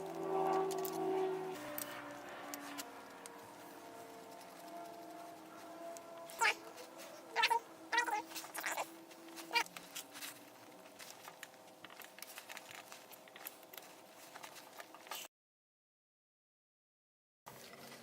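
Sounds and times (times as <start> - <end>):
cat meowing: 6.3 - 6.6, 7.3 - 9.7.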